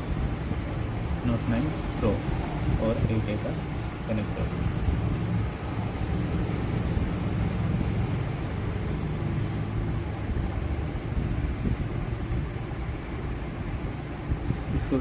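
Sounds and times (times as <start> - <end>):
hot air station blowing: 0.0 - 15.0.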